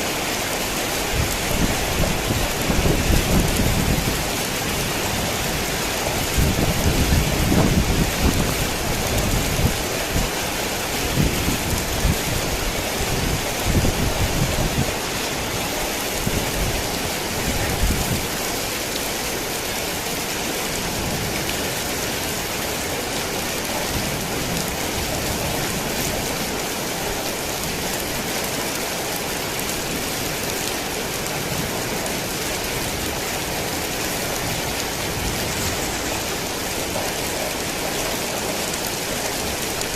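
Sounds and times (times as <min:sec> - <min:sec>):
heavy rain pouring: 0:00.0 - 0:39.9
thunder rumbling: 0:01.1 - 0:15.0.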